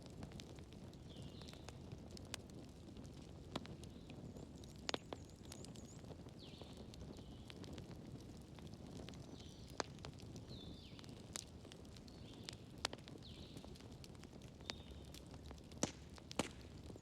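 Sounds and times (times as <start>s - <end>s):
low rumble of burning: 0.0s - 17.0s
wood fire crackling: 0.0s - 17.0s
sharp pops of fire: 4.6s - 5.7s, 9.3s - 17.0s.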